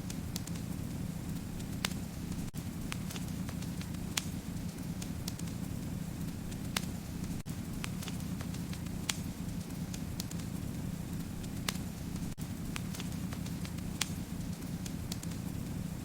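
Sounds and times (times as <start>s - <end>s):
low rumble of flames: 0.0s - 16.0s
wood fire pops and snaps: 0.0s - 16.0s.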